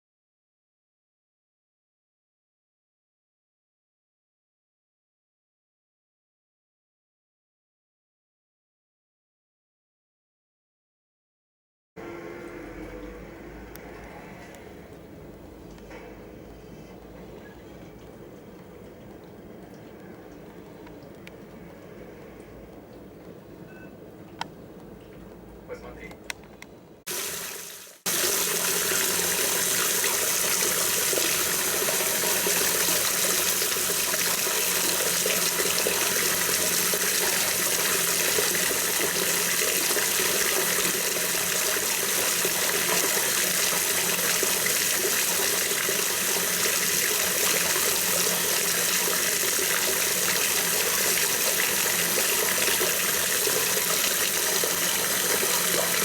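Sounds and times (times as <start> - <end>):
water rushing: 27.1 - 56.0.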